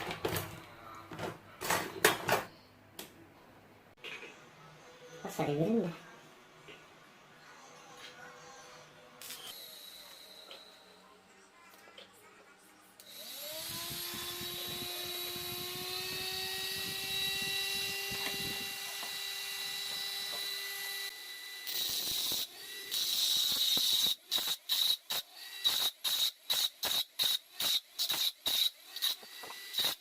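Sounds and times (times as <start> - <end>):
mini grinder motor running: 13.1 - 24.2.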